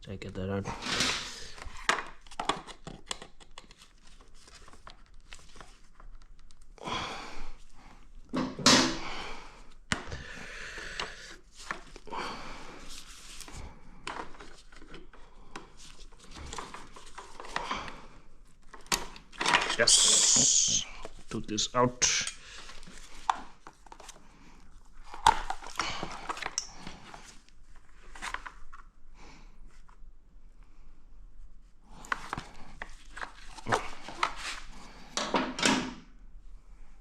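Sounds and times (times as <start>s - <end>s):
pliers clicking and scraping: 22.0s - 22.4s.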